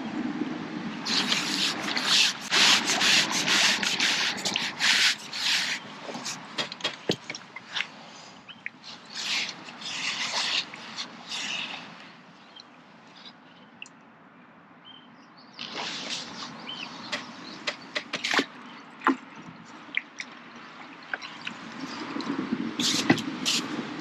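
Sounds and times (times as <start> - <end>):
scraping strokes: 1.1 - 12.1.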